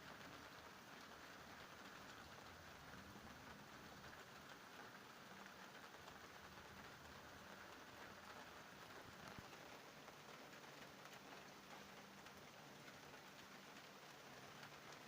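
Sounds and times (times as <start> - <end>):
faint rain falling: 0.0 - 15.0.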